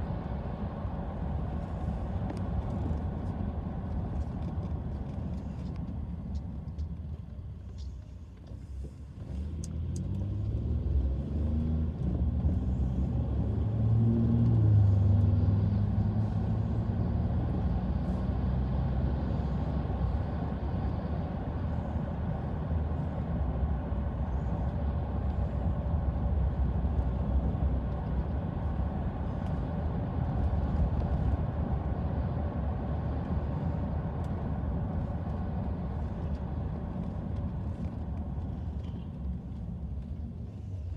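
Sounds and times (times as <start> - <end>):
road noise: 0.0 - 40.9
car engine accelerating: 9.2 - 40.9.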